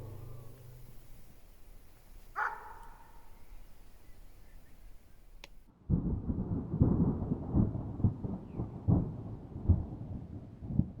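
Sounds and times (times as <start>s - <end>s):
thunder rumbling: 0.0s - 2.5s, 5.9s - 11.0s.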